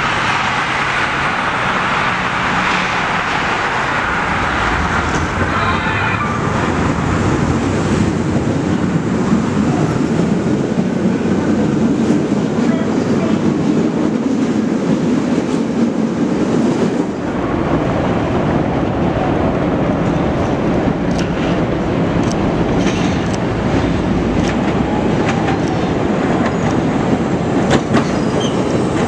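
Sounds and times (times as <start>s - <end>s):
train wheels and motors rumbling: 0.0s - 29.0s.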